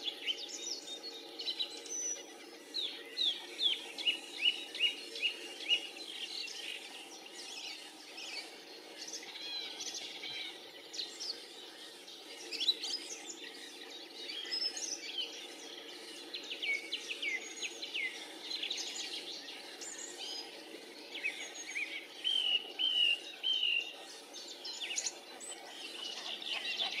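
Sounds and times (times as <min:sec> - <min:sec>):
bird calls and chirps: 0:00.0 - 0:27.0.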